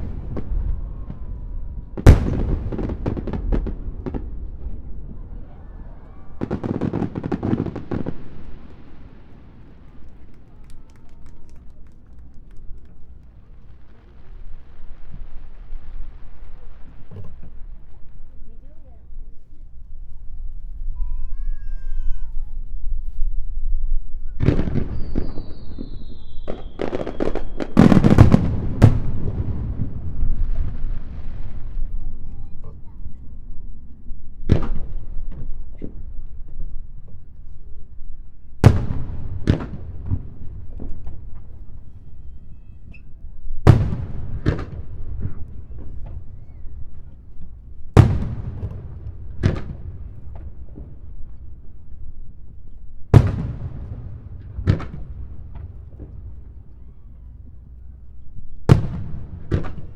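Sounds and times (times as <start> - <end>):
firework boom: 0.0 - 9.2, 38.6 - 42.0
firework bangs and crackles: 0.0 - 21.2, 22.5 - 59.9
firework whistle falling in pitch: 24.8 - 27.8.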